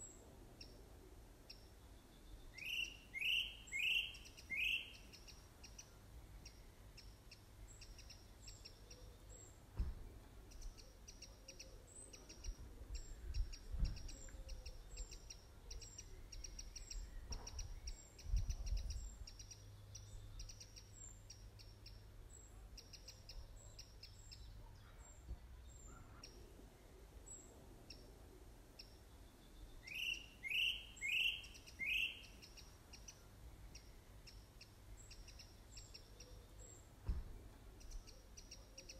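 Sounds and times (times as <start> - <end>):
birds chirping: 1.4 - 38.9
rising bird calls: 2.5 - 5.4, 29.8 - 33.2.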